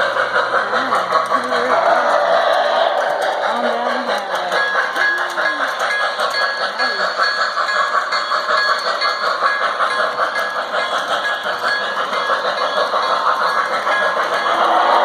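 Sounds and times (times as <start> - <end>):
model train running on track: 0.0 - 15.0.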